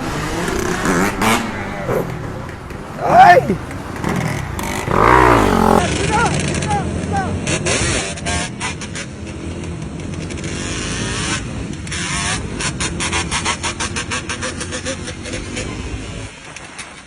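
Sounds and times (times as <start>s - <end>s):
motorcycle engine revving: 0.0s - 5.9s.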